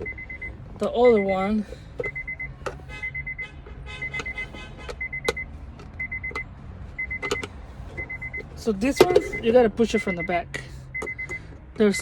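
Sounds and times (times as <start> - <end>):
car warning chime beeping: 0.0 - 12.0
plastic parts clicking and knocking: 7.1 - 8.4.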